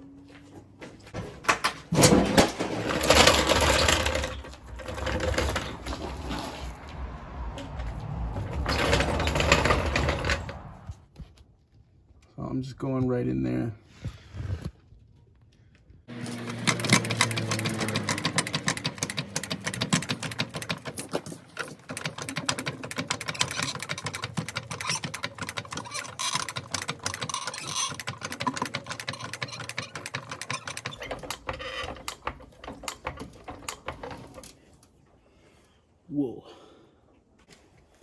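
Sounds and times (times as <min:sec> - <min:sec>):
car engine running: 0:04.3 - 0:11.0, 0:16.1 - 0:20.8.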